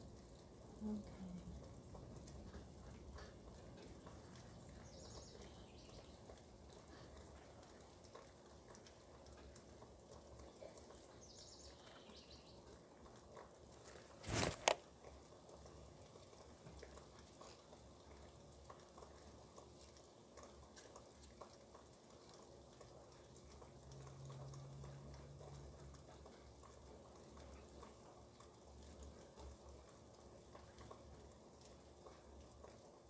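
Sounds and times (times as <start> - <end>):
faint low hum: 0.0 - 14.3
rain dripping off roof: 0.0 - 33.0.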